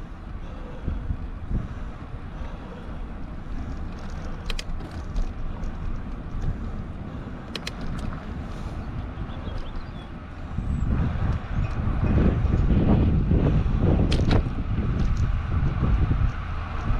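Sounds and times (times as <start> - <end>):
wind buffeting microphone: 0.0 - 16.9
sharp clicks: 3.9 - 5.4, 7.4 - 8.2.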